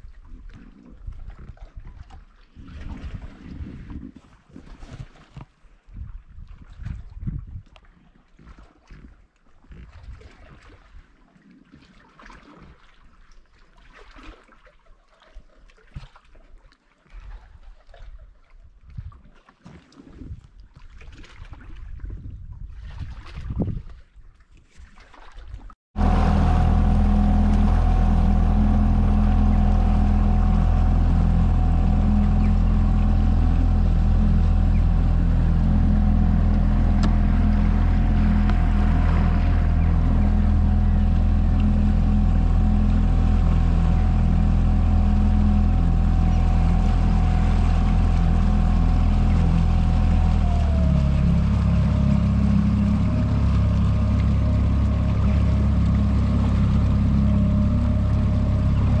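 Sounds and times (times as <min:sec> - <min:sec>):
motorboat engine running: 0:26.0 - 0:59.0.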